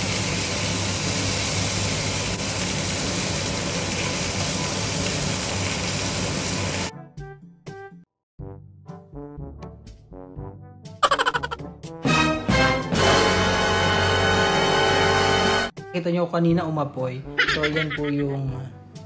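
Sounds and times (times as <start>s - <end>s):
meat sizzling in hot oil: 0.0s - 6.9s
background music: 6.9s - 19.0s.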